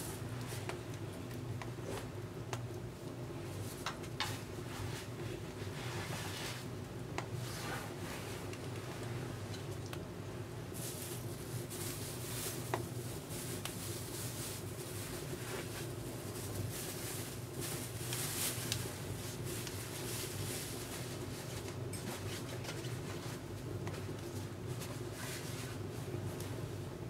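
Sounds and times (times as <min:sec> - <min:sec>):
wood fire crackling and popping: 0:00.2 - 0:04.4.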